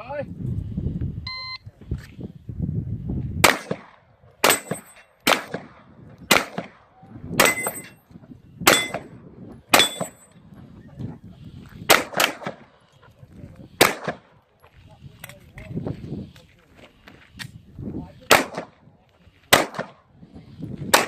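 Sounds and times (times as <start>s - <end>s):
pistol shots: 3.4s - 7.9s, 8.6s - 9.1s, 11.9s - 12.7s, 13.8s - 14.4s, 18.3s - 18.8s, 19.5s - 20.0s
metallic ring of steel targets: 4.4s - 5.1s, 7.4s - 8.0s, 8.7s - 9.1s, 9.7s - 10.4s.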